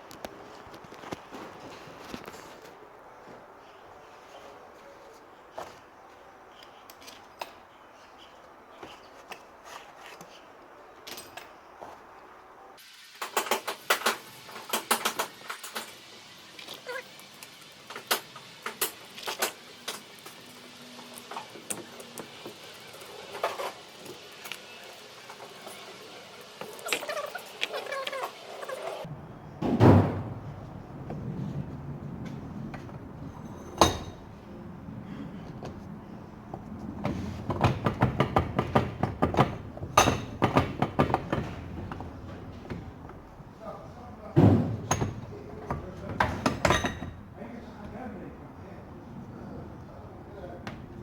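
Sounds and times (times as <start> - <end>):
metal knocks and clanks: 29.6 - 31.4, 44.4 - 47.2.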